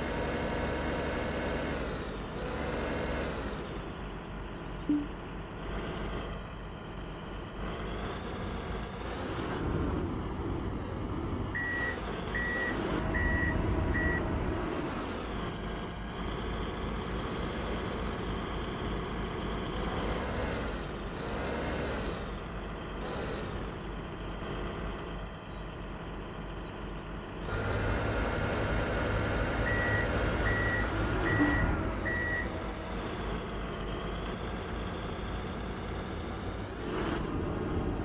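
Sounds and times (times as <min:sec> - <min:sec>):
diesel truck engine running: 0:00.0 - 0:38.0
reversing alarm beeps: 0:11.6 - 0:14.2, 0:29.4 - 0:32.6.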